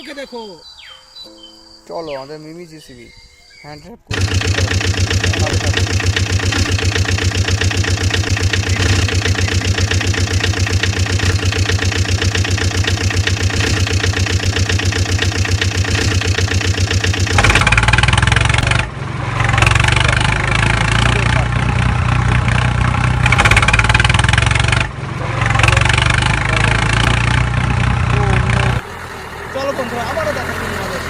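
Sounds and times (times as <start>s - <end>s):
engine idling chugging: 4.1s - 31.0s
loud rough engine: 4.1s - 31.0s.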